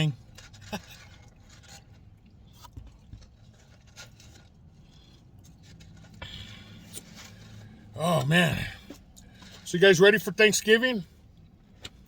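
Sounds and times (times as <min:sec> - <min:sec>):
food clicking and rustling: 0:00.1 - 0:06.2
soft chewing: 0:00.1 - 0:09.7.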